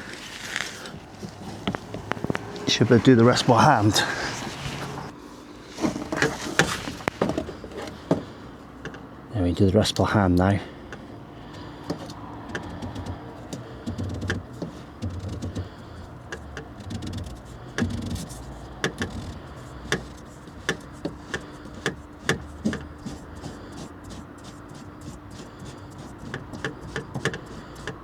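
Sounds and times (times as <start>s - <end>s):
clicks and knocks of tools: 5.8s - 9.1s.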